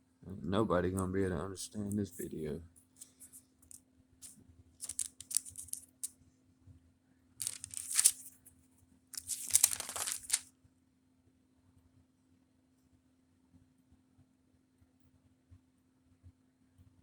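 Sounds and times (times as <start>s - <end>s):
paper pages rustling: 4.8s - 6.1s, 7.4s - 8.4s, 9.2s - 10.4s.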